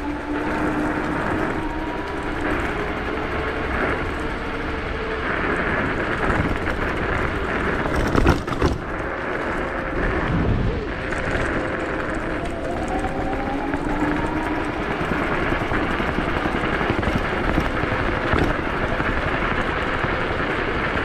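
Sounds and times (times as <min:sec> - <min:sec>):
electric scooters running: 0:00.0 - 0:21.0
faint even whine: 0:00.0 - 0:21.0
loud burst of rumbling: 0:05.3 - 0:21.0.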